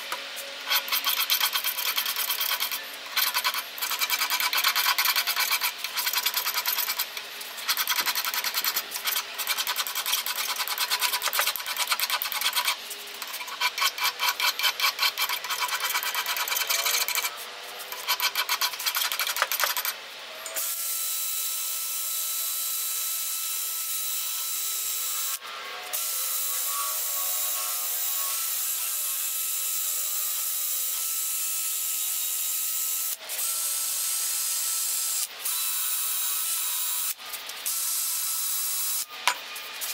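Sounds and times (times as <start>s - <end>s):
metal file scraping steel: 0.0s - 20.0s
wire brush drill on steel: 0.0s - 39.9s.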